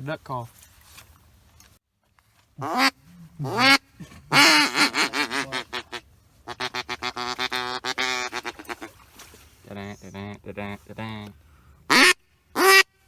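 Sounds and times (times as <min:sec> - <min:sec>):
duck call quacking: 0:02.6 - 0:09.0, 0:11.9 - 0:13.0.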